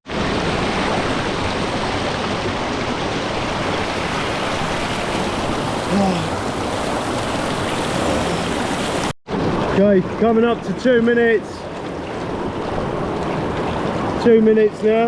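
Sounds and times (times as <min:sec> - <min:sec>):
waterfall pouring into pool: 0:00.1 - 0:11.4
man grunting: 0:05.9 - 0:06.4, 0:08.0 - 0:08.5.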